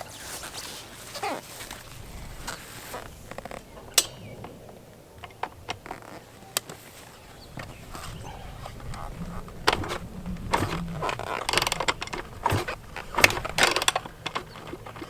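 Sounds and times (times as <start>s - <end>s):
sharp mechanical clicks: 8.9s - 15.0s.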